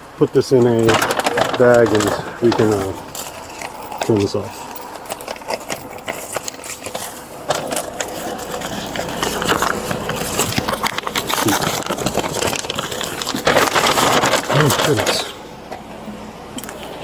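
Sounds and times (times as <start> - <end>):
rustling and scraping: 0.0 - 17.0.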